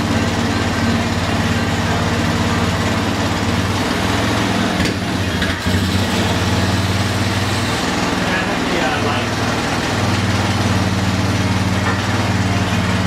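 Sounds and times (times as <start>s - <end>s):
atv engine idling: 0.0s - 13.0s.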